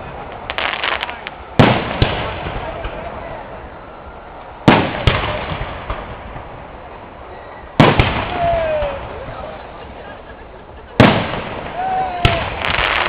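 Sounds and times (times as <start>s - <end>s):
fireworks banging with echo: 0.0s - 3.7s, 4.6s - 6.9s, 7.8s - 9.8s, 10.9s - 13.0s.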